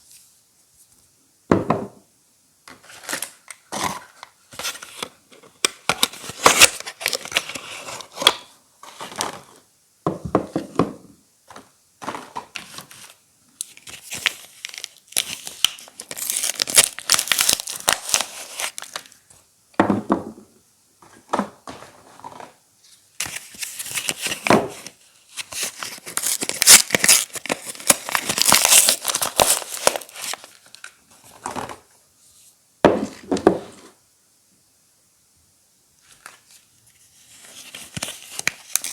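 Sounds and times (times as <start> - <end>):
wrappers tearing and crinkling: 5.8 - 9.5, 12.6 - 19.2, 23.2 - 30.9, 37.3 - 38.9.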